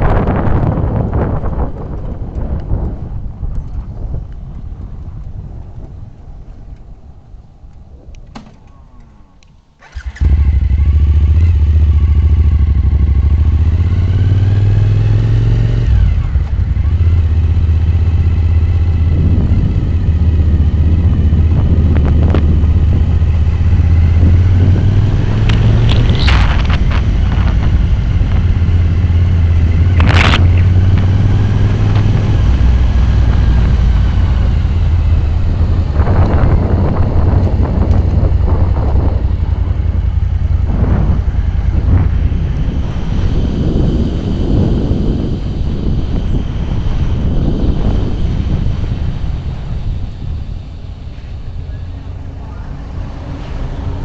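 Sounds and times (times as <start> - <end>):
wind buffeting microphone: 0.0 - 54.0
motorcycle engine running: 9.9 - 54.0
sharp clicks: 25.3 - 28.5.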